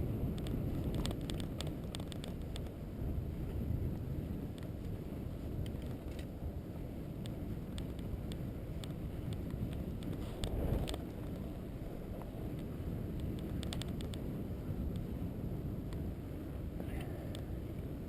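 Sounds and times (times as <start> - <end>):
vehicle rumbling along road: 0.0 - 18.0
wind on microphone: 0.0 - 18.0
light clicks and rattles: 0.3 - 2.8, 5.6 - 6.3, 7.2 - 11.5, 12.2 - 14.3.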